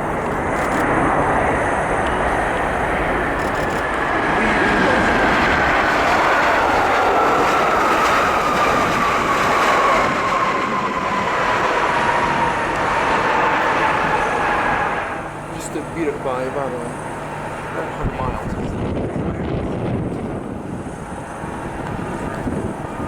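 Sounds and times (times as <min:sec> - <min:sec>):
jet airliner passing: 0:00.0 - 0:23.0.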